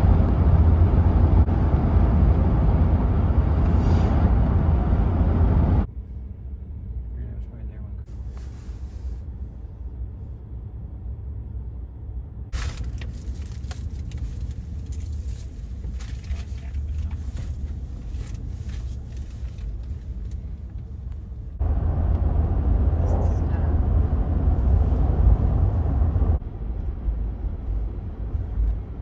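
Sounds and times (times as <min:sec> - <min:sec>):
highway traffic rumble: 0:00.0 - 0:29.0.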